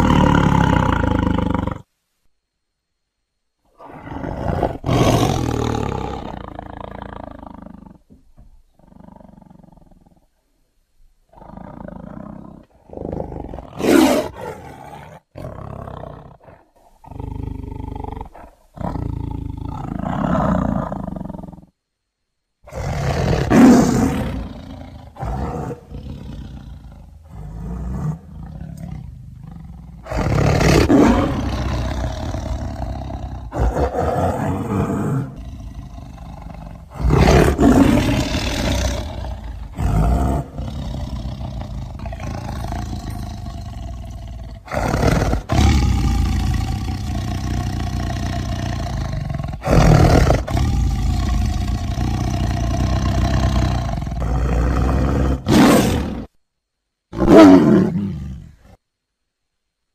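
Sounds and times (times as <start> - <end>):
tigers roaring: 0.0 - 1.9, 3.8 - 8.0, 11.3 - 21.6, 22.7 - 56.3, 57.1 - 58.7.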